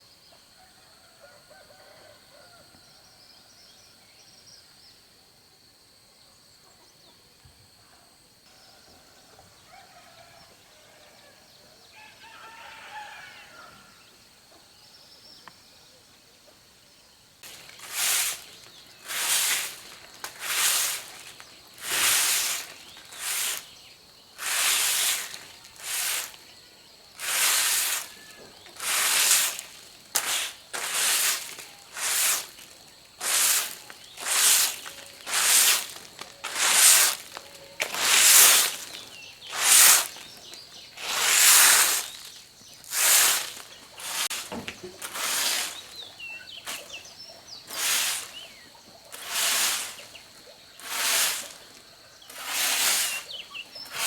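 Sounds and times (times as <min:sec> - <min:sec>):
rooster crowing: 0:00.8 - 0:02.8, 0:09.6 - 0:14.0
loud hissing strokes: 0:17.4 - 0:26.5, 0:27.2 - 0:48.6, 0:49.2 - 0:50.2, 0:50.8 - 0:54.0
chickens calling faintly: 0:17.4 - 0:54.0.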